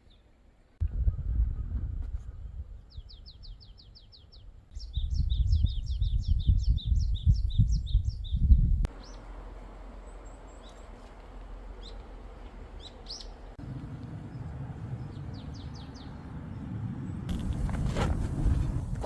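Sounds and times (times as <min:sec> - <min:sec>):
small birds chirping: 0:02.8 - 0:09.4, 0:10.0 - 0:13.6, 0:14.2 - 0:17.9.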